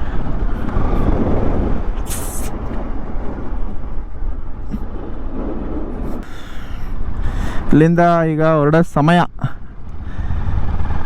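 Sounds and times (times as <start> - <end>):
vehicle rumble: 0.0 - 11.0
short sharp hiss: 2.0 - 2.6.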